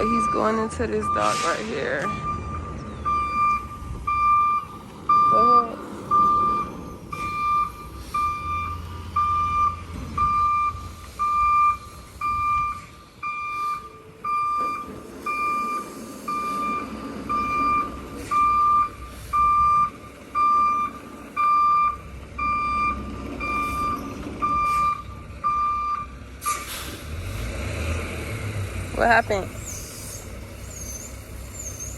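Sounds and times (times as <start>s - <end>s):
truck reversing alarm beeping: 0.0s - 27.0s, 29.1s - 31.9s
diesel engine rumble: 0.0s - 31.9s.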